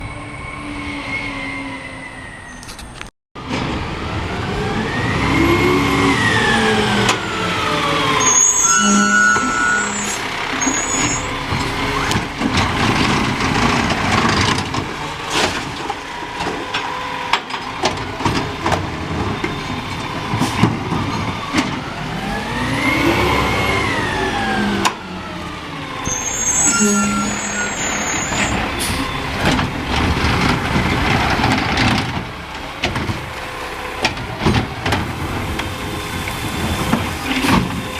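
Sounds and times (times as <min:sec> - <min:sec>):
garbage truck engine revving: 0:03.4 - 0:37.9
high squeals: 0:07.2 - 0:12.1, 0:26.0 - 0:29.4.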